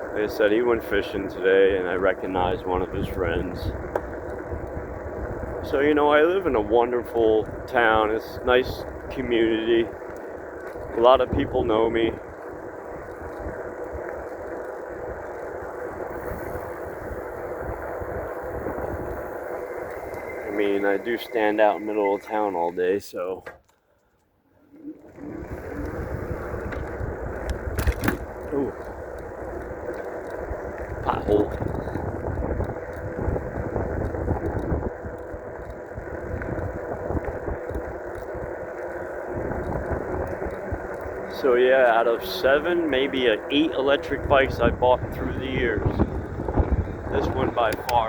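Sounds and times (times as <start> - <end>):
wind buffeting on microphone: 0.0 - 21.0, 25.0 - 48.0
tyre and road rumble: 0.0 - 22.3, 24.7 - 48.0
electric bike rushing: 0.0 - 23.4, 24.4 - 48.0.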